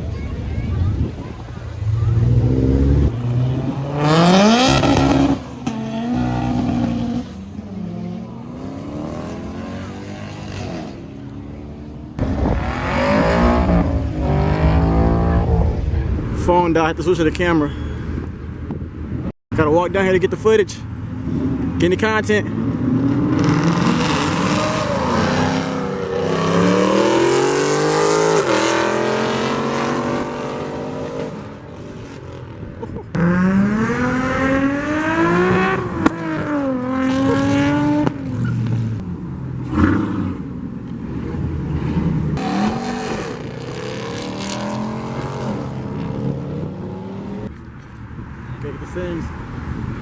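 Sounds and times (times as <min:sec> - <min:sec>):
car engines revving: 0:00.0 - 0:19.3, 0:19.9 - 0:50.0.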